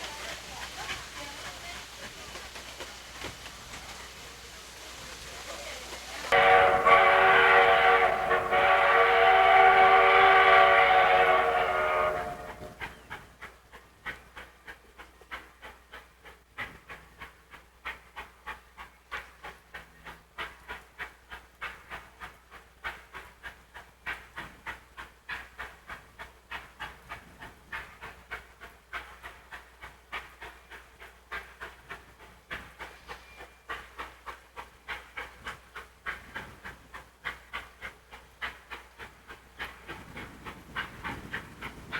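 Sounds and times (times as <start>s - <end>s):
locomotive exhaust chuffs: 5.9s - 41.9s
steam locomotive whistle: 6.3s - 12.8s.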